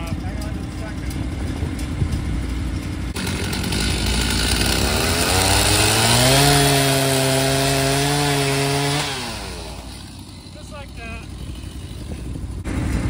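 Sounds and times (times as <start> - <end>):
chainsaw revving and cutting log: 2.8 - 12.8.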